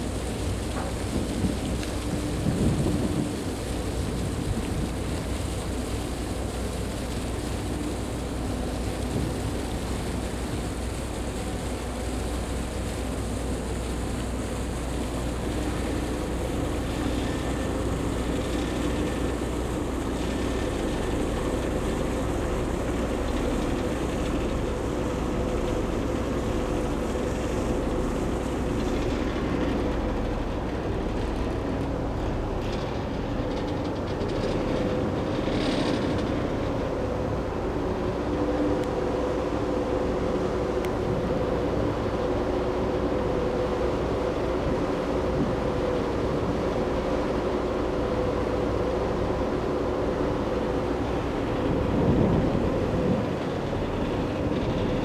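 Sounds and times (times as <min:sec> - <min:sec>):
ship engine drone: 0:00.0 - 0:55.0.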